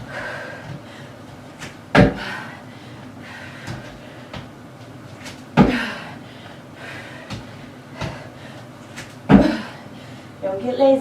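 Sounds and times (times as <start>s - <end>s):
feet thumping on box: 0.0s - 2.5s, 3.6s - 6.2s, 7.2s - 9.8s
footfalls: 0.0s - 2.6s, 3.6s - 6.2s, 7.2s - 9.8s.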